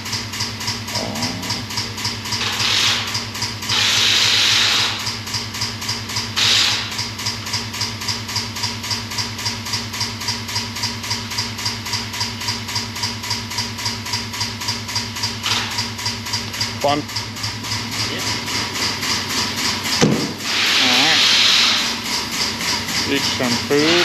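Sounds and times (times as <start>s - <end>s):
diesel engine idling: 0.0s - 24.0s
loud air hiss bursts: 2.4s - 5.2s, 6.4s - 7.1s, 18.2s - 24.0s.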